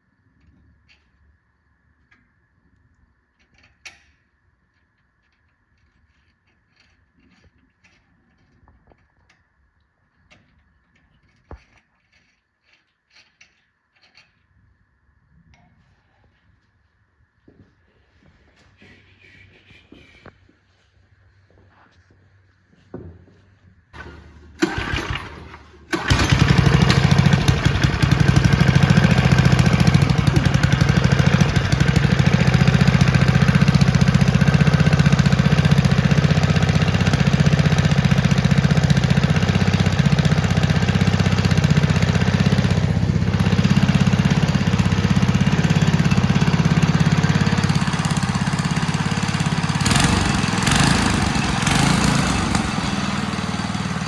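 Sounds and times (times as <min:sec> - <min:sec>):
small go-kart engine running: 0:24.0 - 0:54.0.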